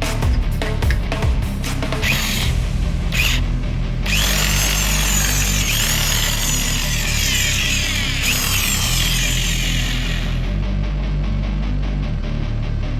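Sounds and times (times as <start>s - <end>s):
background music: 0.0s - 12.9s
electric drill whirring rasp: 2.0s - 10.6s.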